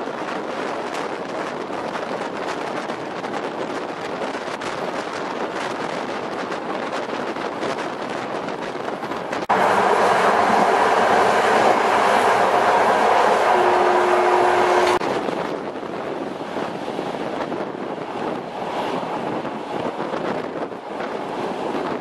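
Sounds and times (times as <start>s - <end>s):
rumble inside train compartment: 0.0s - 22.0s
train rushing noise: 0.0s - 22.0s.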